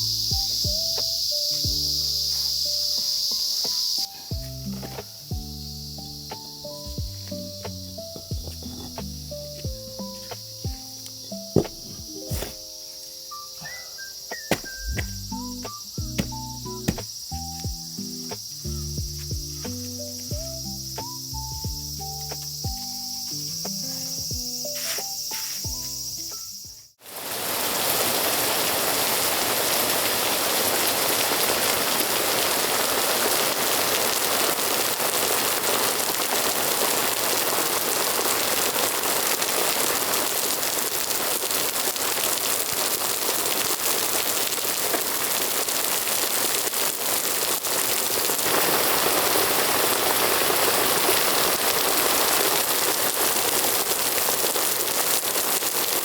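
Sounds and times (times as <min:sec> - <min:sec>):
heavy rain: 0:27.0 - 0:56.0.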